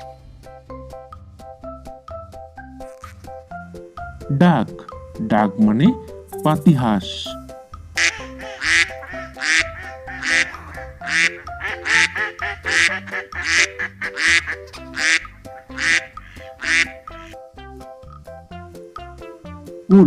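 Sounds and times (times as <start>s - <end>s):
light background music: 0.0s - 20.0s
duck quacking: 8.0s - 17.7s.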